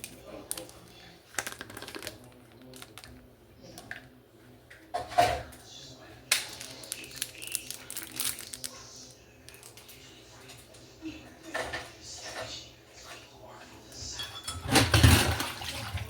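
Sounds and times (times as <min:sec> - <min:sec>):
dishes clattering: 0:04.8 - 0:05.7, 0:10.4 - 0:13.3, 0:14.0 - 0:16.0
dishes loaded into dishwasher: 0:04.9 - 0:05.6, 0:11.4 - 0:12.6, 0:14.0 - 0:16.0.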